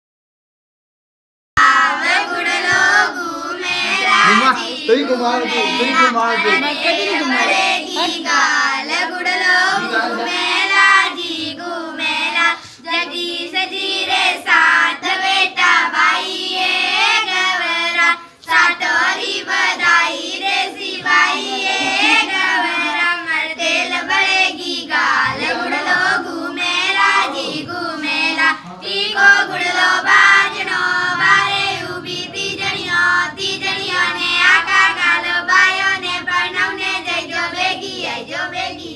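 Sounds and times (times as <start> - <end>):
high child-like voice singing: 1.6 - 8.6.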